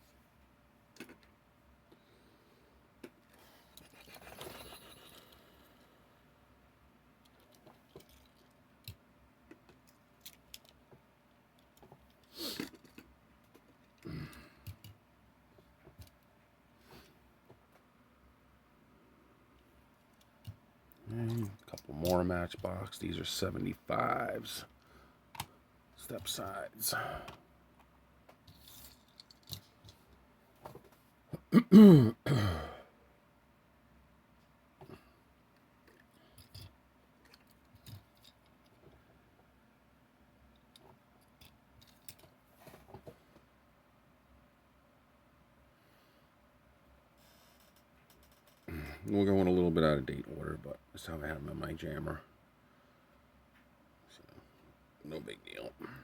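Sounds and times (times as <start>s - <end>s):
toy trucks clicking and rustling: 7.2s - 10.8s, 11.6s - 14.0s, 28.4s - 30.1s.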